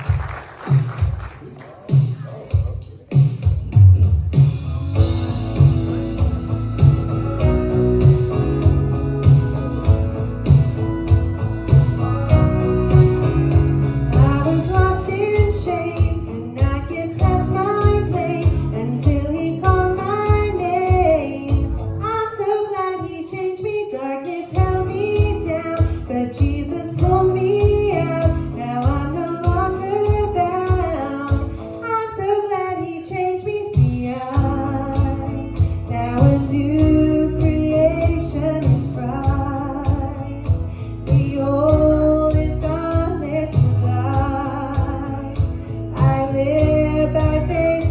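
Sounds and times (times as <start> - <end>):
guitar accompaniment: 1.8 - 47.9
pulsing bass beat: 1.9 - 22.0, 34.4 - 47.9
gospel singing: 5.0 - 21.8.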